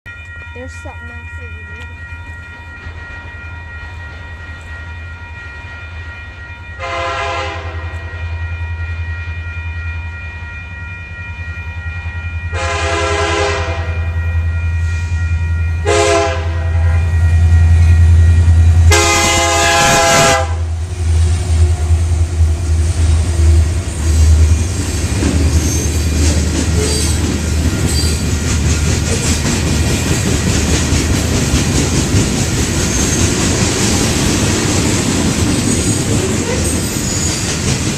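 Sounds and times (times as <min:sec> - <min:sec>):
diesel locomotive engine rumble: 0:00.1 - 0:37.9
train wheels on rails: 0:00.2 - 0:08.9, 0:17.0 - 0:37.9
train horn blasts: 0:06.8 - 0:08.4, 0:12.5 - 0:15.2, 0:15.8 - 0:20.8.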